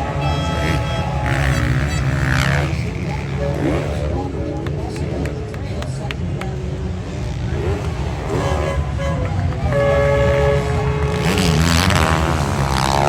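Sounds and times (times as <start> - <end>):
steady held tone: 0.0 - 3.8
motocross bikes revving: 0.0 - 13.0.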